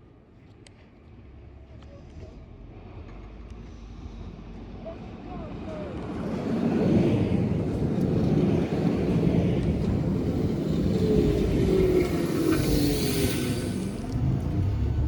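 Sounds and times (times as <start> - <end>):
electric train rumbling past: 4.7 - 15.0.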